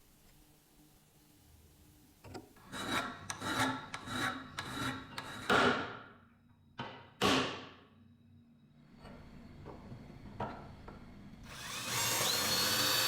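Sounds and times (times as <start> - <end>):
rasping abrasive strokes: 11.5 - 13.0.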